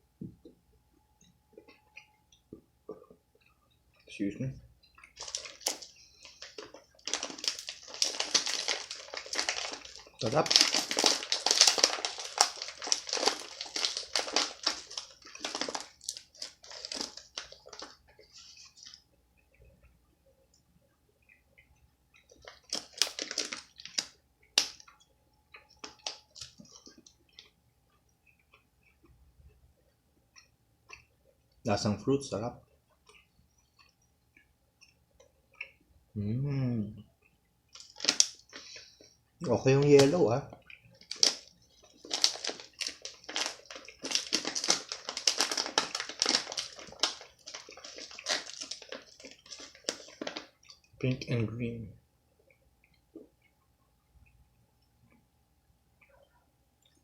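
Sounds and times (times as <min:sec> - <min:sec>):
crunching eating sounds: 0:01.2 - 0:51.7
chewing gummy candy: 0:04.8 - 0:31.6, 0:32.6 - 0:36.0, 0:37.0 - 0:51.3.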